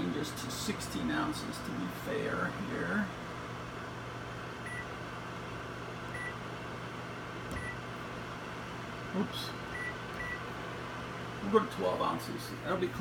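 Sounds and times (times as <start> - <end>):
microwave humming: 0.0 - 13.0
microwave keypad beeping: 4.6 - 4.9, 6.1 - 6.4, 7.5 - 7.8, 9.7 - 10.4.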